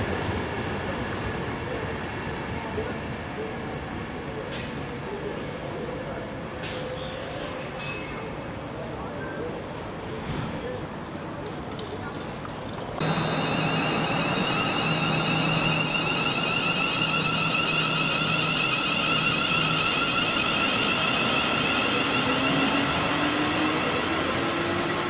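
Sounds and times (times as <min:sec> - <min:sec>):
passing train rush: 0:00.0 - 0:06.7, 0:12.9 - 0:25.0
high whining tones: 0:13.0 - 0:25.0
low rising tone: 0:13.0 - 0:25.0.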